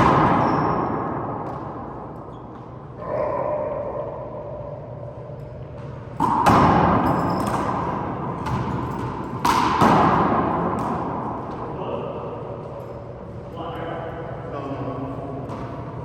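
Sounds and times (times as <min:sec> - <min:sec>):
handball smacks echoing in court: 0:00.0 - 0:04.0, 0:05.3 - 0:13.0, 0:15.3 - 0:16.0.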